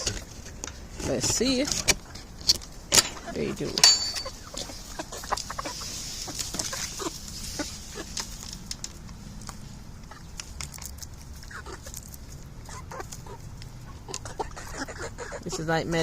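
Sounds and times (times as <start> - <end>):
chickens pecking with sharp taps: 0.0 - 15.6
chickens clucking softly: 3.1 - 16.0.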